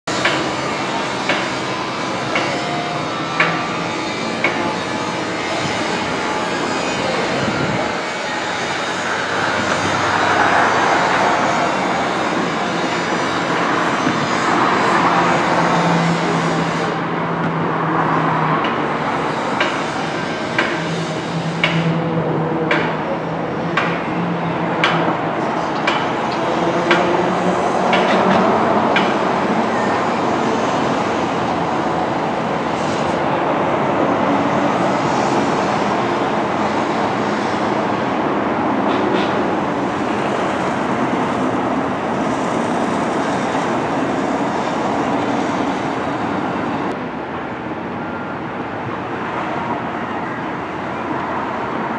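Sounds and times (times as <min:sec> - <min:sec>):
train wheels clicking over rail joints: 0:00.1 - 0:17.7, 0:18.5 - 0:29.9, 0:38.8 - 0:45.6
train rumble: 0:00.1 - 0:51.9.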